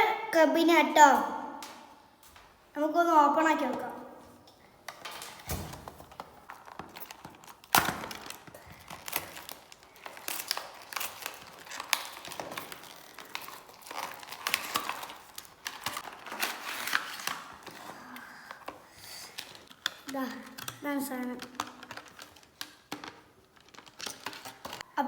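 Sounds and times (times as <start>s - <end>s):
plastic wrap crinkling: 4.9s - 24.9s.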